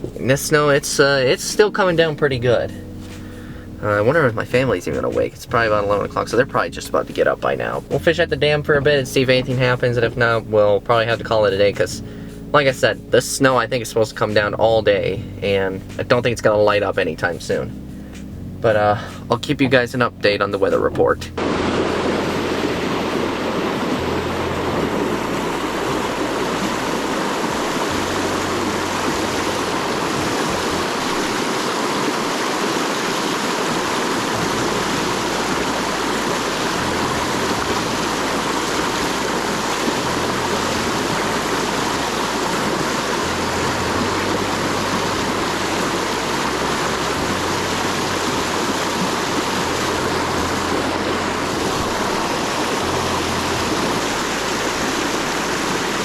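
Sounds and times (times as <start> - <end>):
water pouring over spillway: 21.4 - 56.0.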